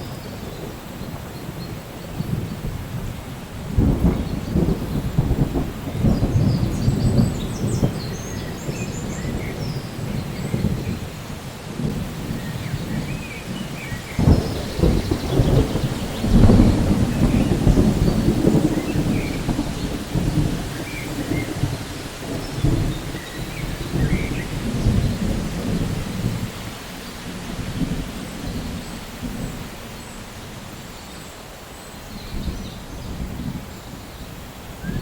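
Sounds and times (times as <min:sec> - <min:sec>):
thunder rumbling: 0:00.0 - 0:30.9
steady rain: 0:00.0 - 0:35.0
thunder crack: 0:02.2 - 0:11.0, 0:11.8 - 0:26.5.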